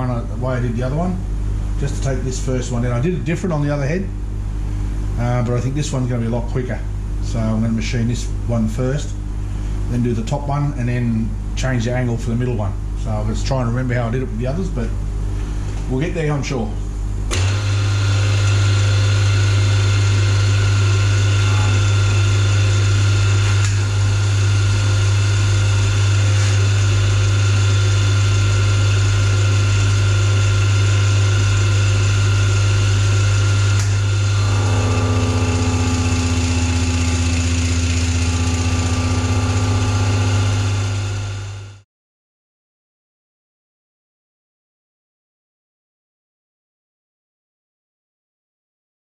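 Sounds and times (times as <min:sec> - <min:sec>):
milling machine running: 0:17.3 - 0:41.8.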